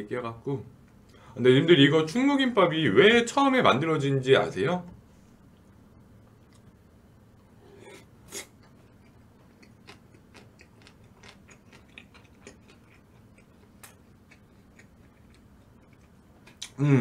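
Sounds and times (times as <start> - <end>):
soft chewing clicks and crunches: 6.4 - 6.8, 8.4 - 16.8.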